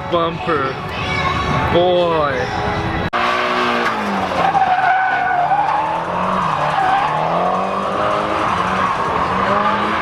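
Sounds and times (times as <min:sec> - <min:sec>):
tyres skidding and squealing: 0:00.9 - 0:10.0
car engine at high revs: 0:03.2 - 0:10.0.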